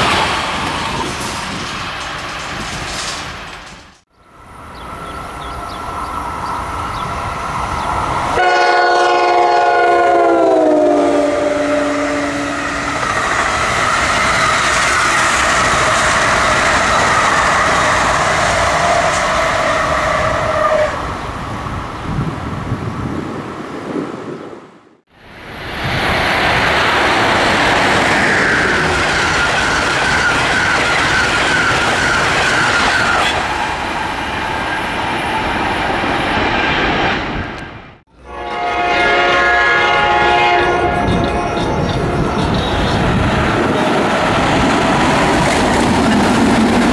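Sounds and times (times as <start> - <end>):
train passing at speed: 0.0 - 46.9
train horn chord: 8.4 - 13.0, 38.2 - 41.7.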